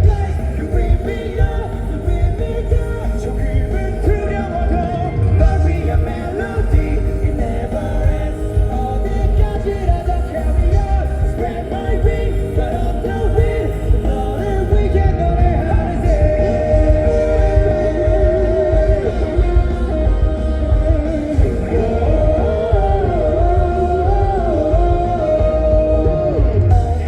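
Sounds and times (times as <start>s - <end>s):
live rock band playing: 0.0s - 27.0s
person singing: 0.0s - 27.0s.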